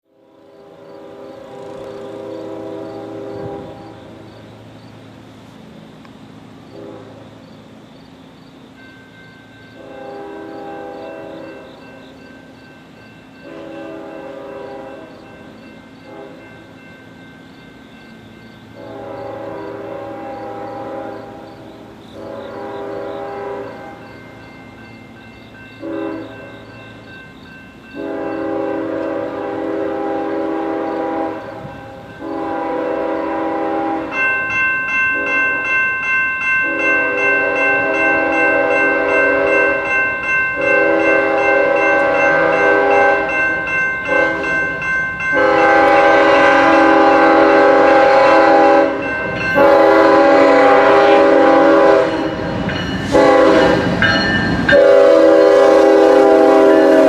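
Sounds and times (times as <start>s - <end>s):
rumble of passing locomotive: 0.0s - 57.0s
locomotive horn blasts: 0.6s - 4.3s, 6.7s - 7.4s, 9.8s - 11.9s, 13.4s - 15.3s, 16.0s - 16.6s, 18.8s - 24.2s, 25.8s - 26.6s, 27.9s - 34.2s, 35.1s - 35.6s, 36.6s - 40.0s, 40.6s - 57.0s
crossing bell ringing: 8.4s - 57.0s.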